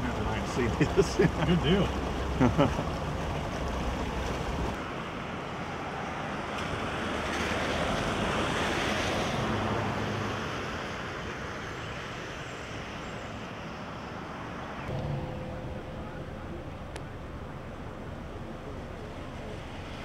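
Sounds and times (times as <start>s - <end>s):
floodwater rushing: 0.0s - 10.6s.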